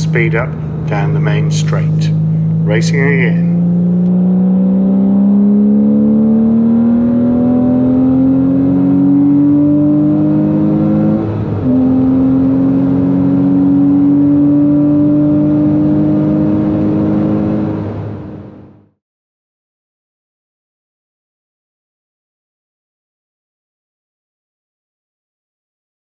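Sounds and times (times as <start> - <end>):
car engine accelerating hard: 0.0 - 18.9.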